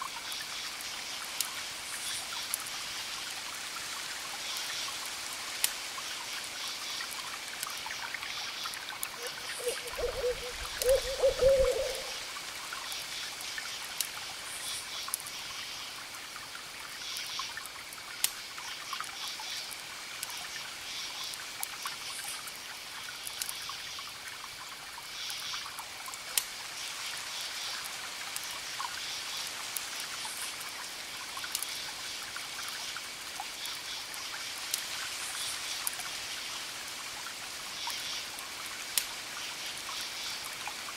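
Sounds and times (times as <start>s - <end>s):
owl hooting: 9.2s - 12.3s.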